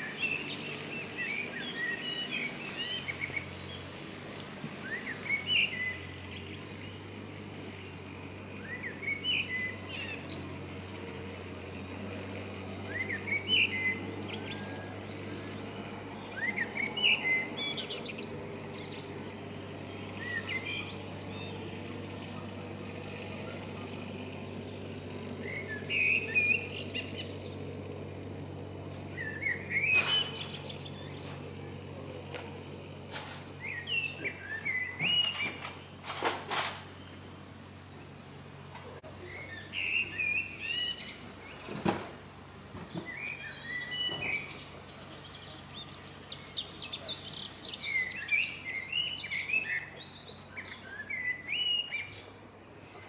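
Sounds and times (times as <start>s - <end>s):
songbird singing: 0.0s - 53.0s.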